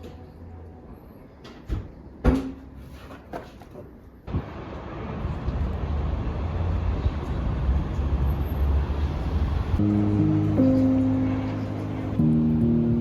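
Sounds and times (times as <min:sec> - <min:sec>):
low rumbling street traffic: 0:00.0 - 0:13.0
background music with held notes: 0:09.8 - 0:13.0.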